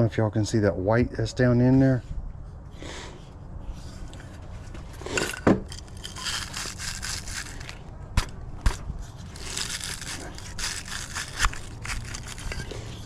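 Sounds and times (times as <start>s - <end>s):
hands and tools scraping: 2.9s - 13.0s.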